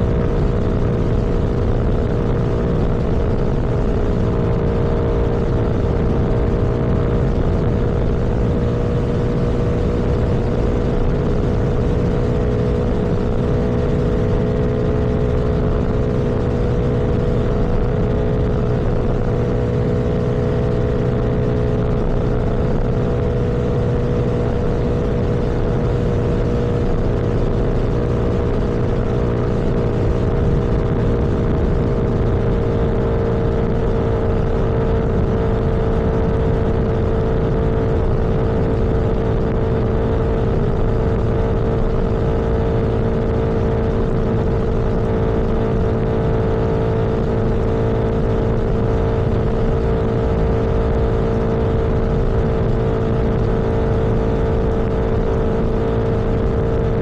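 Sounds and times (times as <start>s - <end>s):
vehicle engine running: 0.0s - 57.0s
wind and road noise: 0.0s - 57.0s.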